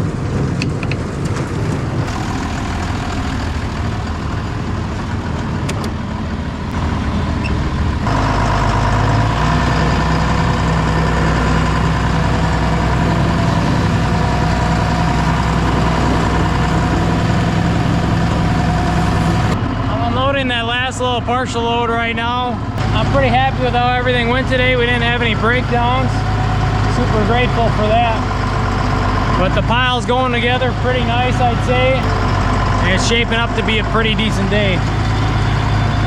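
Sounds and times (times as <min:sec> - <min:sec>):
tractor diesel engine running: 0:00.1 - 0:36.0
steady whine: 0:02.0 - 0:08.8, 0:22.8 - 0:36.0.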